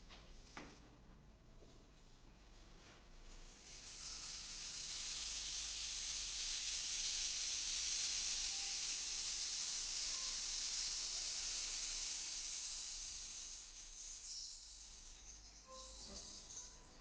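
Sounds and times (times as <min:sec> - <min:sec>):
rainstick beads pouring: 0:03.6 - 0:17.0.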